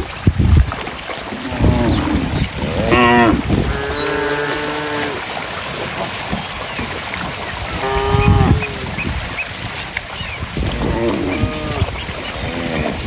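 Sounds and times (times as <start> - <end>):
river water rushing: 0.7 - 13.0
cattle mooing: 1.5 - 5.2, 7.8 - 8.8, 10.7 - 13.0.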